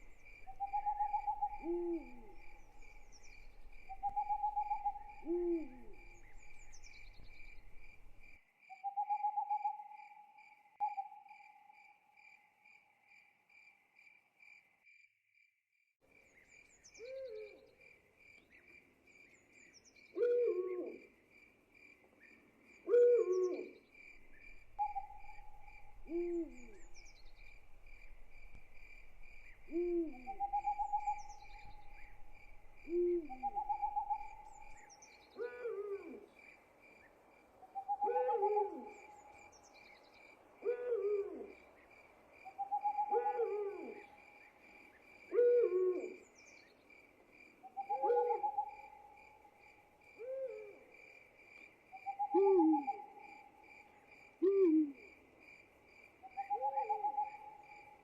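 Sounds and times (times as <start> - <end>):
owl hooting: 0.0 - 8.2, 17.0 - 17.6, 20.2 - 21.0, 22.9 - 36.3, 37.8 - 39.4, 40.6 - 41.6, 42.5 - 44.2, 45.3 - 46.2, 47.7 - 49.1, 50.2 - 50.8, 52.0 - 53.3, 54.4 - 55.1, 56.3 - 58.0
crickets chirping: 0.0 - 15.1, 16.1 - 58.0.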